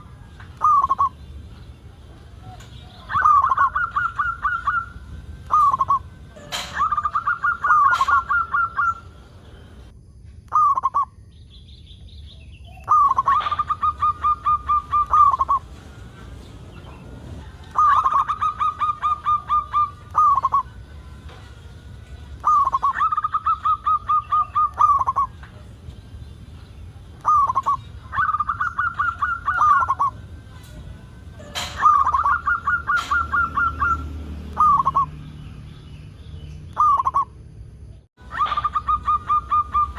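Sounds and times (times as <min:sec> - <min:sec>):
dove cooing: 0:00.0 - 0:01.2, 0:02.4 - 0:09.2, 0:12.8 - 0:20.8, 0:22.4 - 0:25.7, 0:27.2 - 0:30.8, 0:31.4 - 0:35.1, 0:38.3 - 0:39.9.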